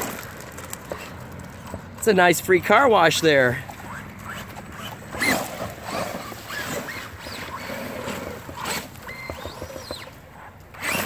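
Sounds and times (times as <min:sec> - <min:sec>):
tires spinning through muddy water: 0:00.0 - 0:11.0
electric motor whining: 0:03.7 - 0:11.0.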